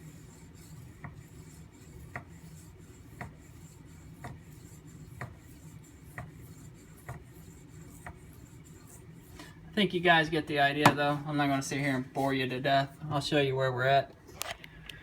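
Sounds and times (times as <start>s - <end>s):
knife rubbing on whetstone: 0.0s - 9.5s.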